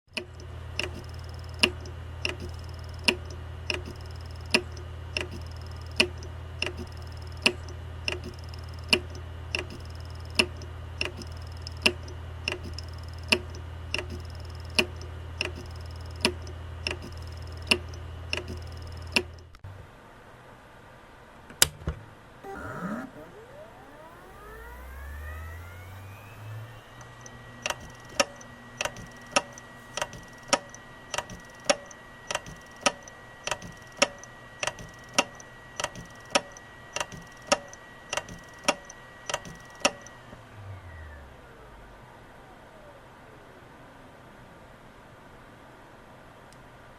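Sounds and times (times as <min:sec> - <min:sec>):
hard disk spinning hum: 0:00.0 - 0:21.2, 0:21.9 - 0:46.9
hard disk heads clicking: 0:00.1 - 0:19.6, 0:25.3 - 0:40.2.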